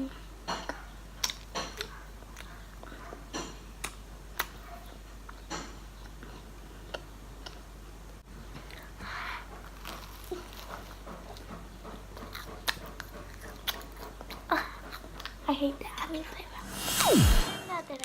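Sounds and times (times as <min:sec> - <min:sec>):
toast being chewed: 0:09.6 - 0:15.4.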